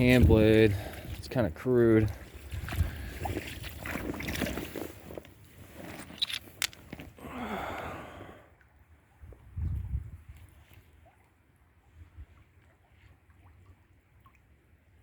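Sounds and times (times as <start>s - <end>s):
water sloshing around wading: 0.0s - 7.2s, 8.6s - 15.0s
small clicks and knocks: 6.2s - 7.1s.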